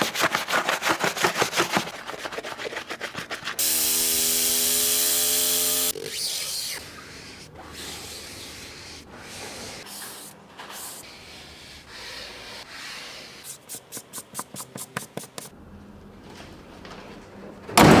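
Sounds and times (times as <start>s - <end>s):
rubbing and scrubbing: 0.0s - 3.6s.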